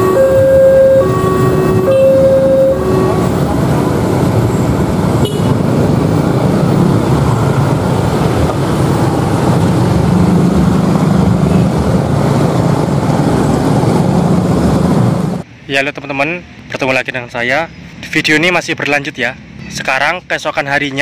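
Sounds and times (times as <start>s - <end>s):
train coaches rumbling on rails: 0.0s - 15.4s.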